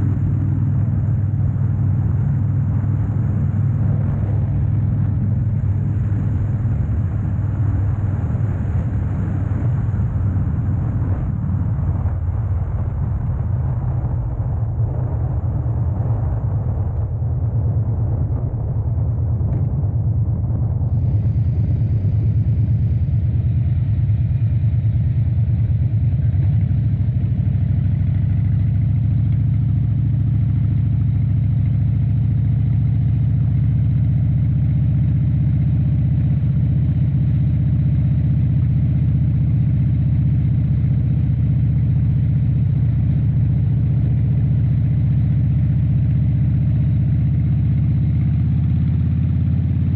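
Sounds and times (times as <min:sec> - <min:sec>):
motorcycle engine running: 0:00.0 - 0:49.9
road noise: 0:00.0 - 0:49.9.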